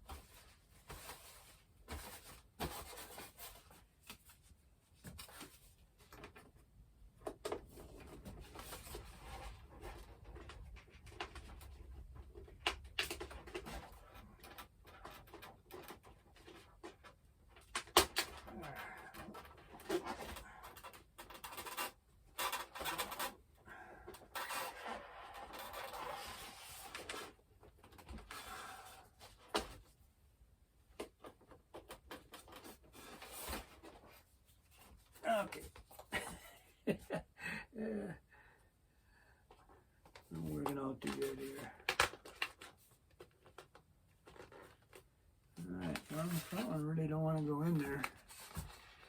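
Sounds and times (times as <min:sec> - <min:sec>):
foam and plastic parts rubbing: 0:07.4 - 0:30.0, 0:39.5 - 0:49.0.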